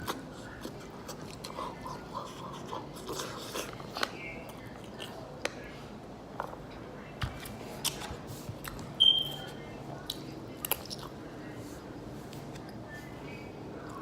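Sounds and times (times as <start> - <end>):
chewing and wet mouth sounds: 0.0 - 5.6, 7.3 - 11.2.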